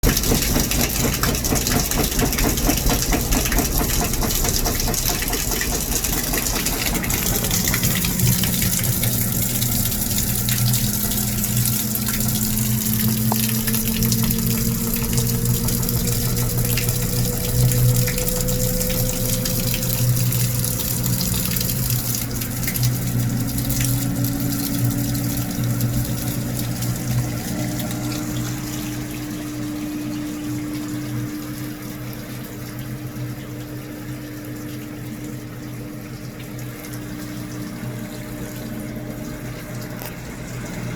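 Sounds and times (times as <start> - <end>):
fast rattling pulse: 0.0 - 10.2
water running through pipes: 0.0 - 40.9
faint rising tone: 11.8 - 22.3.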